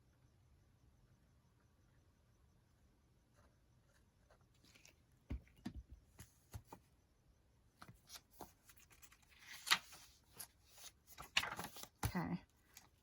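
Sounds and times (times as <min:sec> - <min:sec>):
paper pages shuffling: 0:04.6 - 0:05.4, 0:07.8 - 0:13.0.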